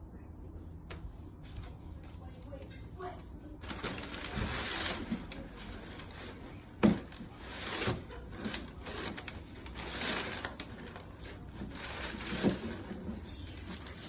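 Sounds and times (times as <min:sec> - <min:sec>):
packaging rustling and scraping: 0:03.6 - 0:14.0.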